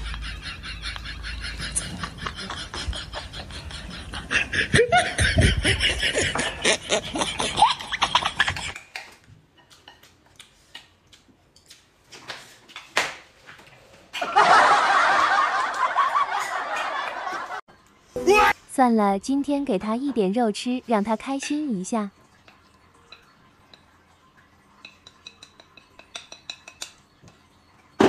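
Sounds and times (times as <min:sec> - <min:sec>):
man laughing: 0:00.0 - 0:08.7.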